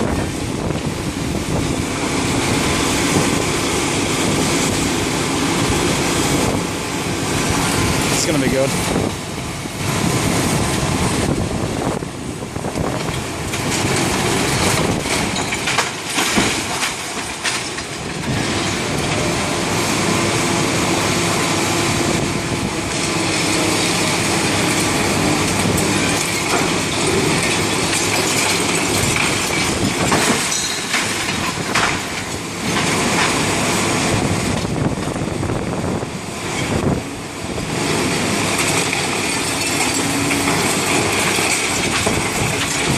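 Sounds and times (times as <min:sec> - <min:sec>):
machinery grinding and crunching concrete: 0:00.0 - 0:42.9
debris clanks and knocks: 0:12.8 - 0:19.3, 0:23.0 - 0:33.6, 0:38.4 - 0:42.9.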